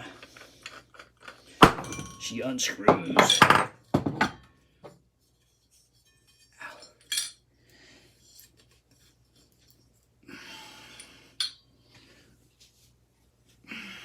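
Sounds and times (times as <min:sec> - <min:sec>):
metal parts clinking and scraping: 0:00.0 - 0:02.4, 0:05.9 - 0:07.4.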